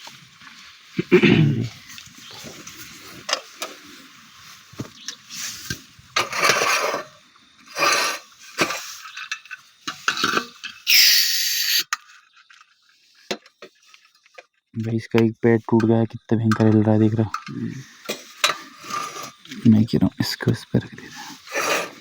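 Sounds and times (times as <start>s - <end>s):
gas hissing: 10.9s - 11.8s.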